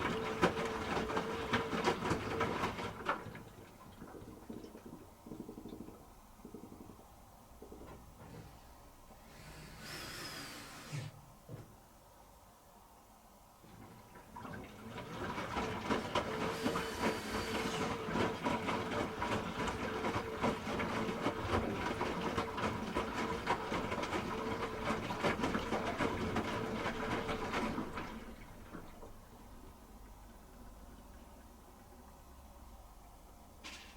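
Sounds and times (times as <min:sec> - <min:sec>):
wet load clattering and sloshing: 0:00.0 - 0:09.9, 0:13.6 - 0:32.2
brief hiss: 0:09.2 - 0:11.2.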